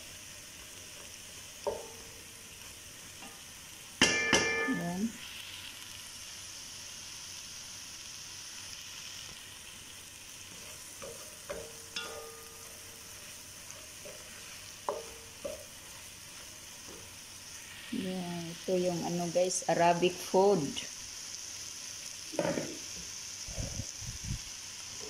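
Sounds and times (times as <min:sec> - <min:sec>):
chicken sizzling in a pan: 0:00.0 - 0:25.0
wooden spatula knocking pan: 0:01.6 - 0:02.2, 0:04.0 - 0:04.8, 0:10.9 - 0:15.9.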